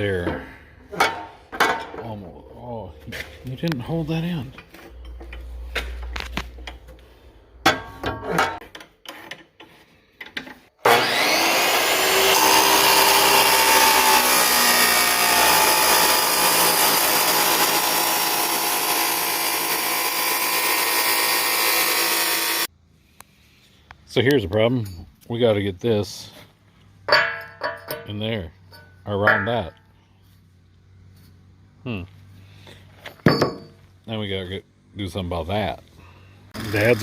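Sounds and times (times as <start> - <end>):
power tool cutting steel: 10.8 - 22.7, 36.5 - 37.0.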